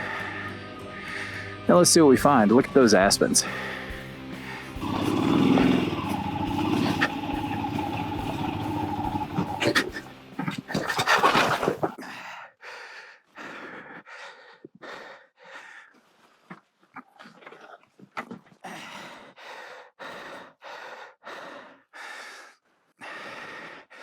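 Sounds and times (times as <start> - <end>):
person breathing hard: 0.0 - 1.6, 3.4 - 10.2, 11.9 - 16.4, 18.6 - 24.0
motorcycle engine labouring: 3.4 - 10.2.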